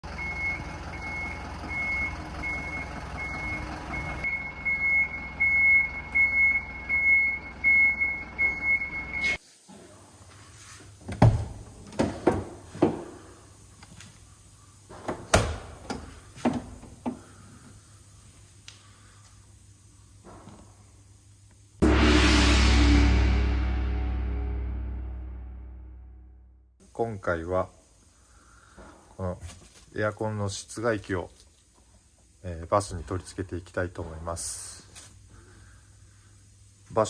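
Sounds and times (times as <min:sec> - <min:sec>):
vehicle back-up beeper: 0:00.1 - 0:09.4
knocks and clunks: 0:11.1 - 0:13.2, 0:14.9 - 0:17.3.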